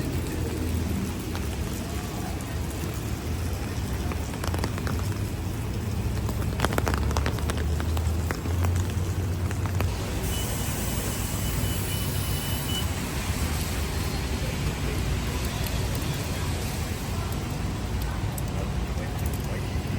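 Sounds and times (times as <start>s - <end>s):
drops ticking: 0.0s - 10.0s
heavy rain: 0.0s - 19.9s
tyres hissing on wet pavement: 0.0s - 19.9s
vehicle engine rumble: 0.0s - 19.9s.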